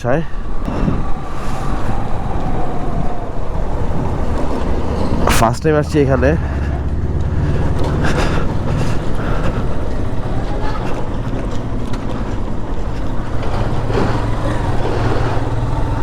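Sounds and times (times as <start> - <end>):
road noise: 0.0 - 16.0
wind noise: 0.0 - 16.0
motorcycle engine running: 2.5 - 16.0.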